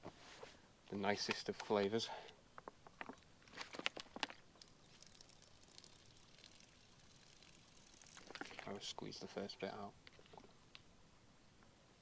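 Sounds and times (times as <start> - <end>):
faint hiss: 0.0 - 2.5, 4.6 - 12.0
water dripping into pouch: 3.0 - 8.8.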